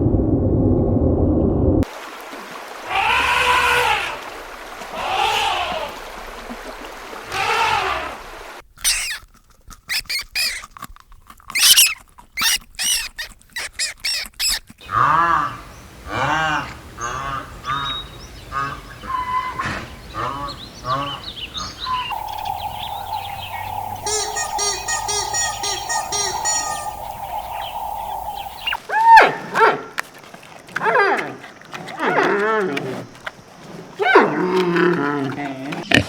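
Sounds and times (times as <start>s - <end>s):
waterfowl harsh calls: 2.9s - 6.1s, 7.3s - 8.2s, 14.9s - 28.8s
evenly spaced bird calls: 17.0s - 28.8s
quick high chirps: 22.1s - 28.8s
steady held tone: 22.1s - 28.8s.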